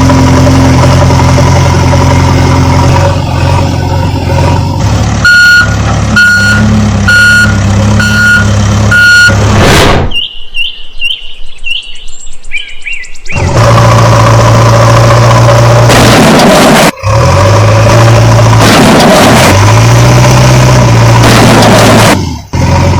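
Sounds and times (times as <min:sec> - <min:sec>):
truck engine running: 0:00.0 - 0:09.7, 0:13.4 - 0:22.9
reversing beeper: 0:05.2 - 0:09.4.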